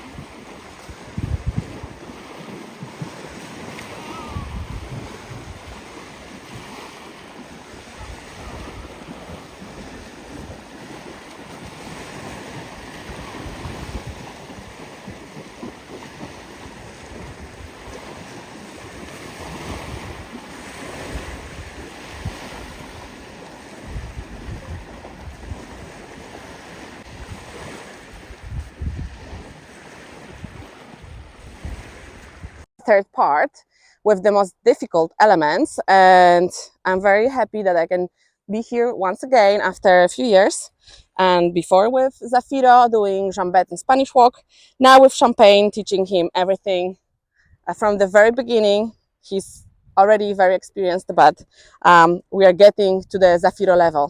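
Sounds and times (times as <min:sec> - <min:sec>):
sea surf washing in: 0:00.0 - 0:32.7
wind buffeting microphone: 0:00.0 - 0:32.7, 0:49.4 - 0:50.0.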